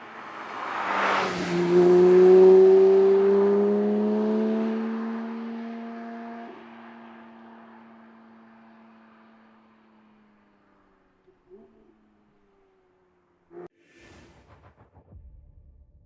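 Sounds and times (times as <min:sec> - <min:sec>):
sports car engine accelerating: 0:00.4 - 0:13.7.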